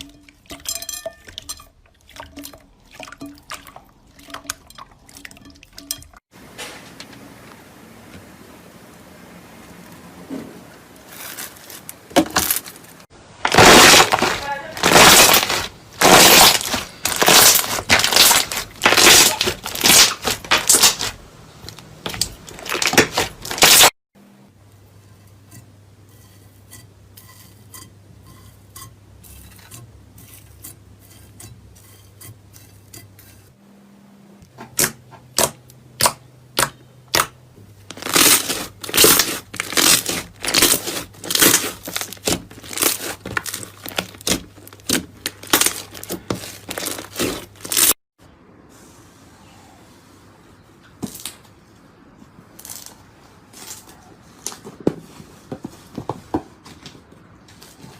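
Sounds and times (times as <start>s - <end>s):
slime crackling and popping: 13.4s - 23.9s, 37.9s - 48.0s.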